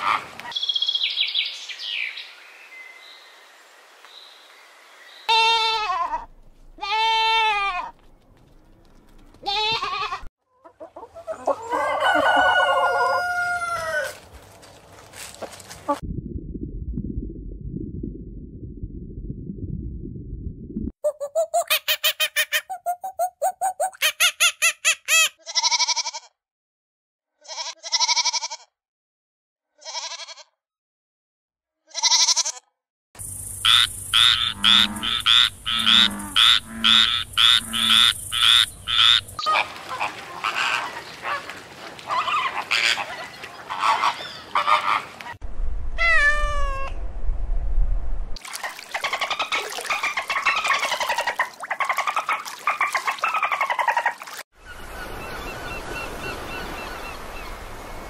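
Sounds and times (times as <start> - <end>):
animal calls: 33.7 - 41.5, 42.1 - 45.3.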